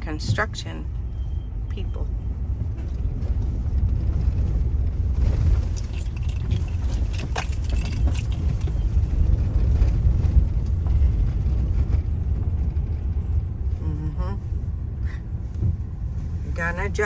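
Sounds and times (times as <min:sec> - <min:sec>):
metallic jingling and rattling: 0:05.4 - 0:09.3
car rumble from inside cabin: 0:05.4 - 0:10.8.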